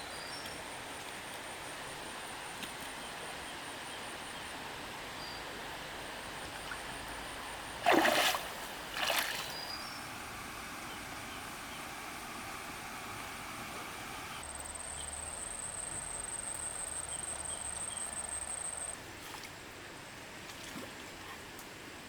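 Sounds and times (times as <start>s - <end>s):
insects chirping: 3.0s - 19.0s
water splashes: 6.4s - 14.4s, 20.4s - 21.4s.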